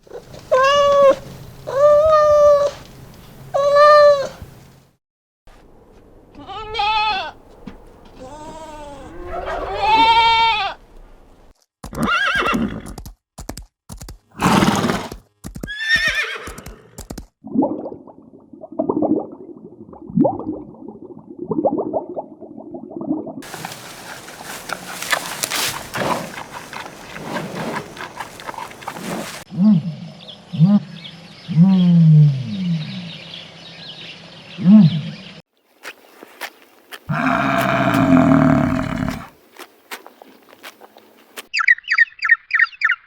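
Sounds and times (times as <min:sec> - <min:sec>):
horse whinnying: 0:08.2 - 0:10.8, 0:11.9 - 0:12.9, 0:14.4 - 0:16.8, 0:37.1 - 0:39.3
low rhythmic animal sounds: 0:23.4 - 0:33.2, 0:37.1 - 0:39.3.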